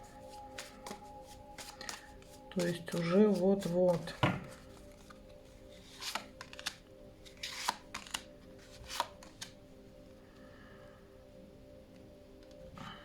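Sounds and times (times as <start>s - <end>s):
cards swishing and flicking: 0.3s - 4.1s.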